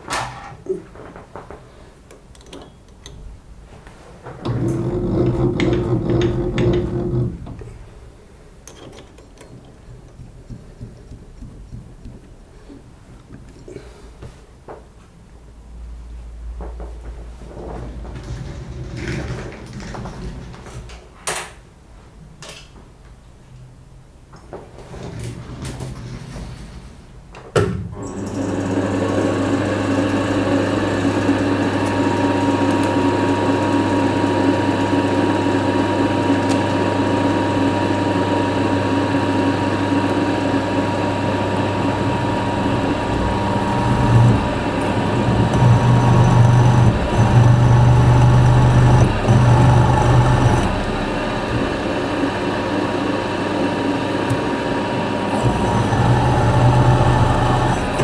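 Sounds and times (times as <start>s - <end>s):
machine tool motor humming: 28.1s - 58.0s.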